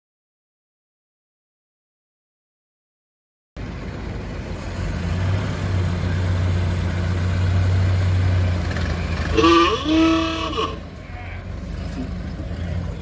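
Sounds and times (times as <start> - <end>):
car engine running: 3.6 - 13.0.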